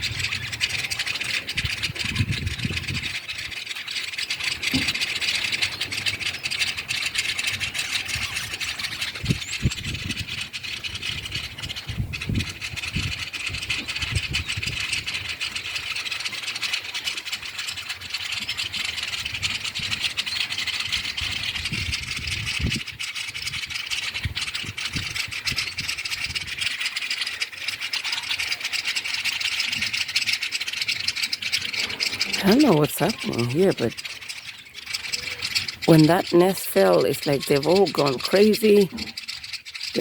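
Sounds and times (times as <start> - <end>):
flock of small birds chattering: 0.0 - 40.0.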